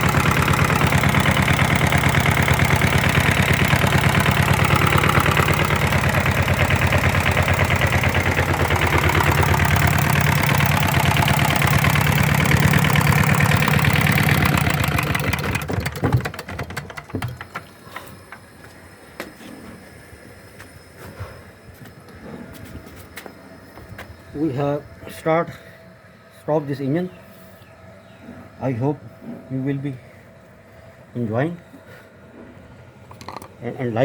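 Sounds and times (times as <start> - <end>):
diesel engine running: 0.0 - 18.9
faint clicks and knocks: 15.8 - 18.5.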